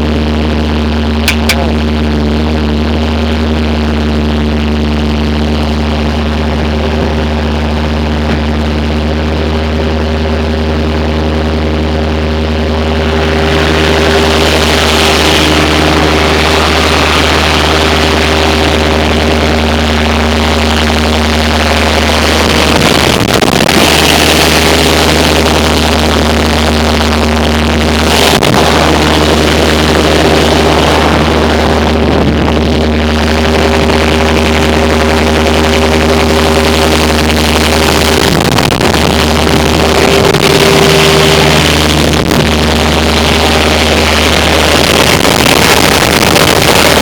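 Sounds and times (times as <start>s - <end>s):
diesel engine running: 0.0s - 47.0s
rushing noise: 36.6s - 47.0s.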